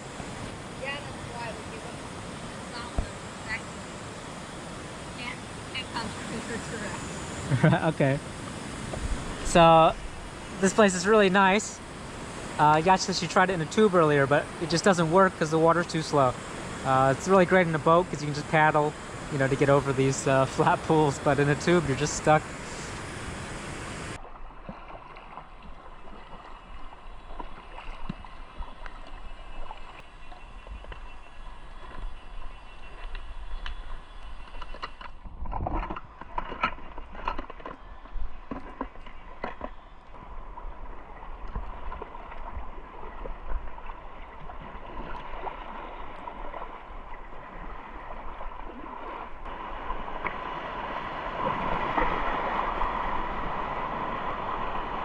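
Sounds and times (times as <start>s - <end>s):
flowing river water: 0.0s - 55.0s
paddle splashing in water: 24.2s - 31.2s, 31.8s - 55.0s.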